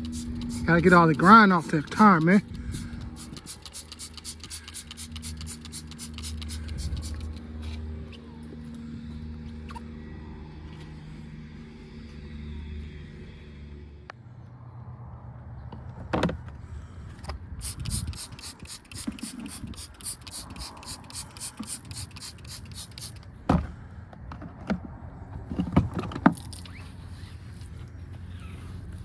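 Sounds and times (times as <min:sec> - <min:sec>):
brush scrubbing: 0:00.0 - 0:02.4, 0:03.0 - 0:07.4, 0:17.6 - 0:23.2.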